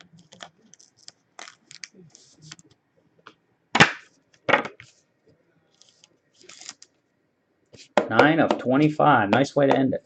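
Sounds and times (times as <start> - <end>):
trading cards and packaging rustling: 0.0 - 2.8, 5.7 - 7.0.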